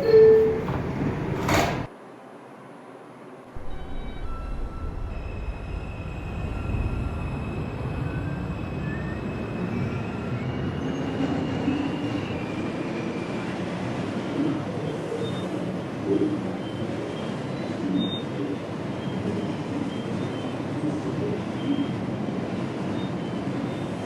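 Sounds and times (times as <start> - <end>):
wheels rumbling on rail: 0.0 - 1.9
subway motor whine: 0.0 - 24.0.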